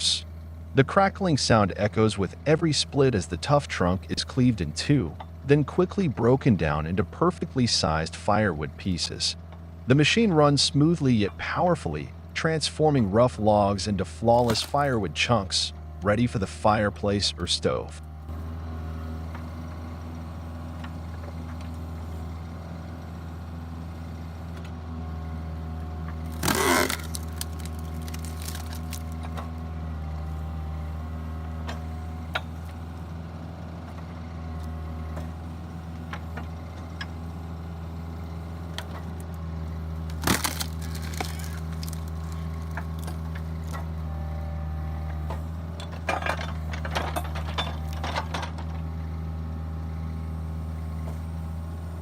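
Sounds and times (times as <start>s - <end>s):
wood splitter humming: 0.0s - 52.0s
logs cracking apart: 26.1s - 29.7s, 40.0s - 43.8s.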